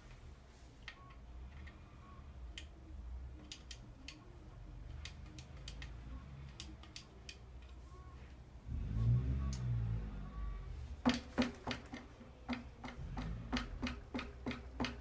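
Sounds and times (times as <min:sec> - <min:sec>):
faint low rumble: 0:07.4 - 0:11.0.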